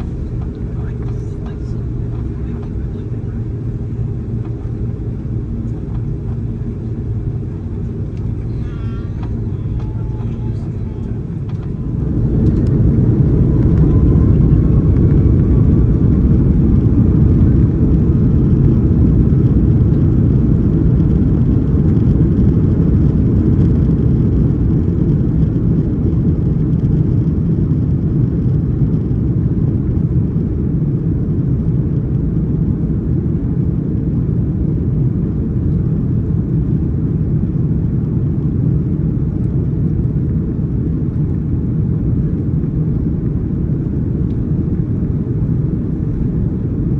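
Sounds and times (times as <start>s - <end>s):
engine whine rising: 0.0s - 18.8s
jet engines rumbling: 0.0s - 46.9s.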